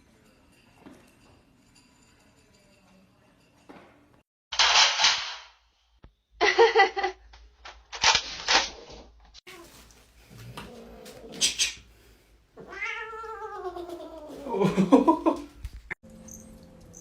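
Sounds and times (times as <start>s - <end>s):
cat hissing: 10.7s - 12.0s.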